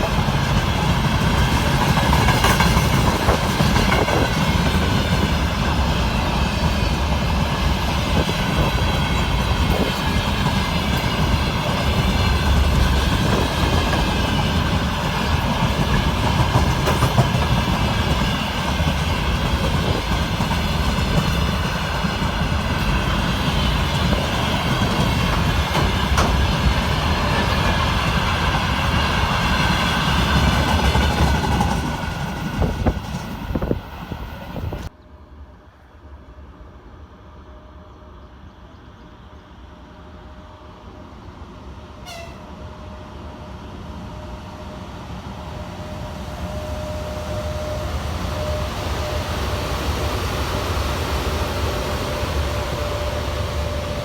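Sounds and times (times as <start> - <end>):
train wheels clattering on rails: 0.0 - 34.9.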